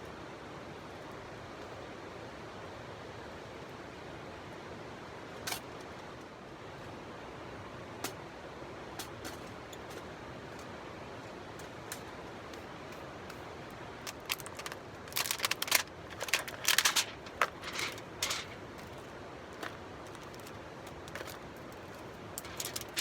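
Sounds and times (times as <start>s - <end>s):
campfire crackling: 11.6s - 23.0s.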